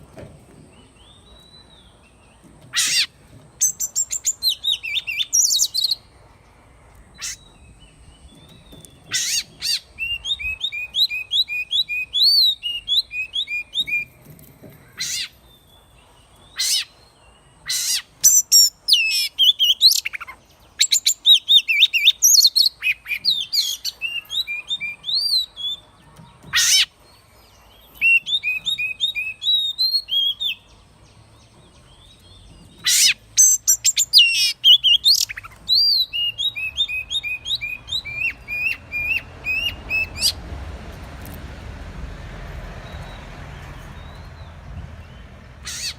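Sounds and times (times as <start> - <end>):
bird singing whistled phrases: 28.0 - 30.6, 33.0 - 40.3.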